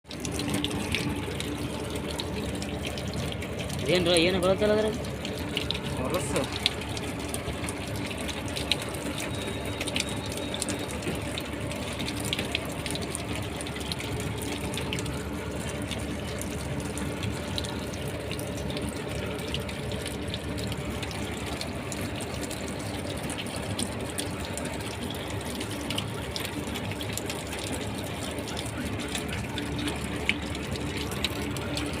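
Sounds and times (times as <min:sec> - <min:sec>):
water running out of tank: 0:00.0 - 0:32.0.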